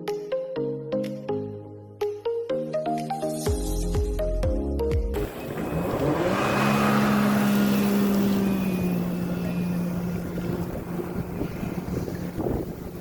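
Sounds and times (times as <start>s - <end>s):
motorboat engine: 5.2s - 13.0s
rushing wind: 5.2s - 13.0s
water noise: 5.2s - 13.0s.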